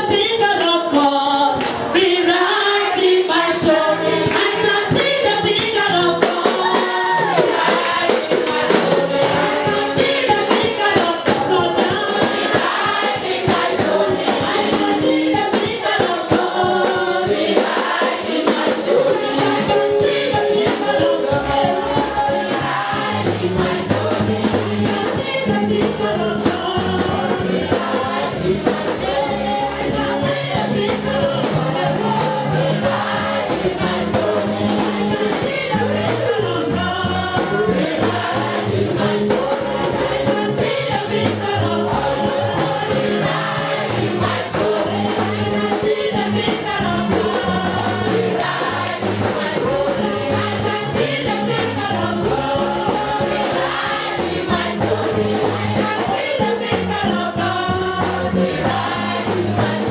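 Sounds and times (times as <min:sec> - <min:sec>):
band with repeating bass line: 0:00.0 - 0:59.9
choir and congregation singing: 0:00.0 - 0:59.9.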